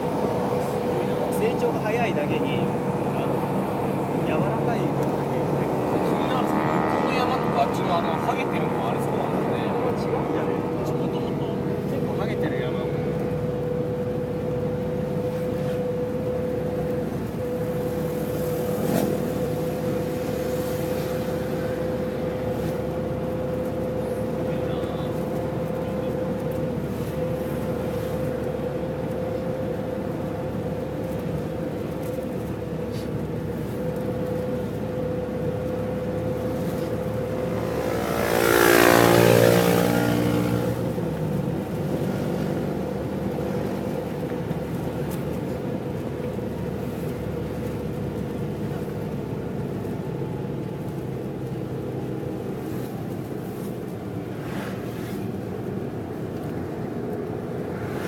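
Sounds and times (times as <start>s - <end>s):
vehicle passing by: 0.0s - 12.5s, 17.8s - 23.3s, 35.9s - 45.2s, 52.6s - 58.0s
road and wind noise: 0.0s - 58.0s
vehicle engine running: 0.0s - 58.0s.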